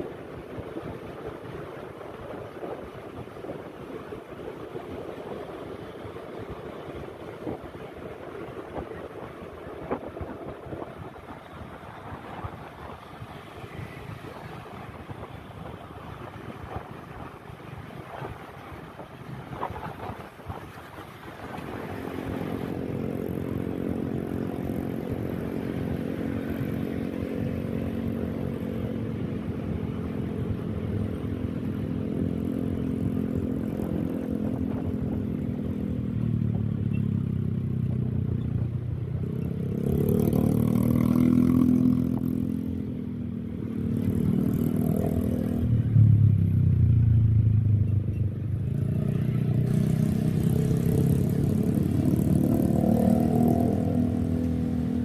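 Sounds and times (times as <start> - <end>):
motorcycle engine revving: 39.2 - 42.9, 43.8 - 55.0.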